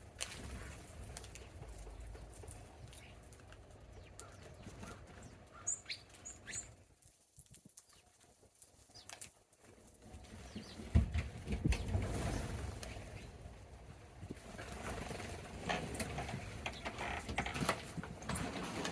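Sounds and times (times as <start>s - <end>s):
small birds chirping: 0.5s - 13.5s, 15.8s - 18.9s
wing flutters: 10.2s - 18.9s.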